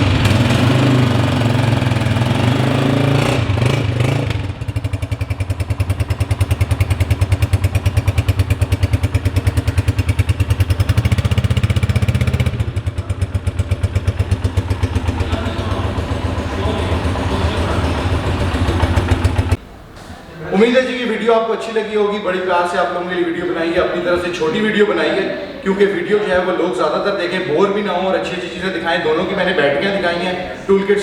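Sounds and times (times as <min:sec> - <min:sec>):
motorcycle engine idling: 0:00.0 - 0:19.8.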